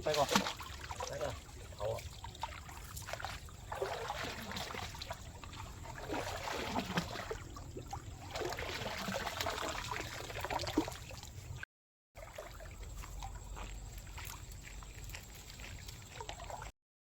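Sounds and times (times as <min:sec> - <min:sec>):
river water trickling and splashing: 0:00.0 - 0:11.6, 0:12.2 - 0:16.7.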